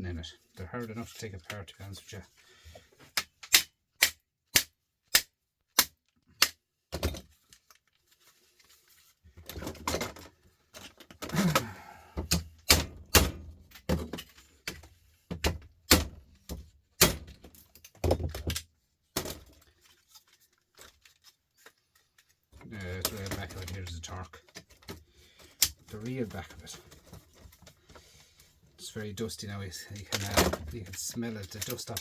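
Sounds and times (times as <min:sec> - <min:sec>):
scraping and rattling plastic: 0:07.0 - 0:11.8, 0:13.0 - 0:28.1, 0:29.5 - 0:32.0.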